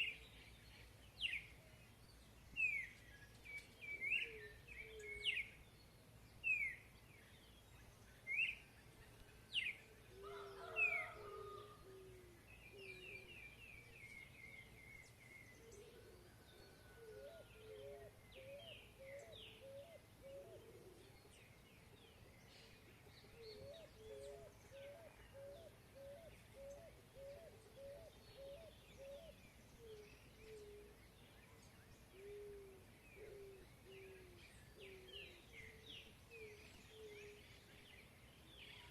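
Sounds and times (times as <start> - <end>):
soft low bird calls: 8.1 - 38.9.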